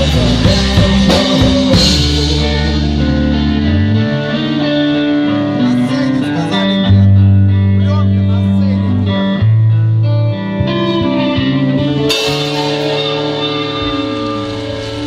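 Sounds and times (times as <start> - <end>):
electric guitar chords: 0.0 - 15.0
drum kit hits: 12.1 - 15.0.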